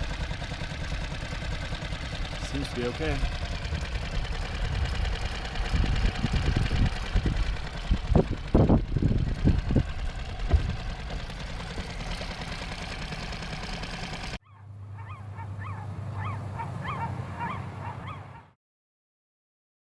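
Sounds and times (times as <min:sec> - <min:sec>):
outboard motor running: 0:00.0 - 0:18.4
short rising calls: 0:12.7 - 0:18.5.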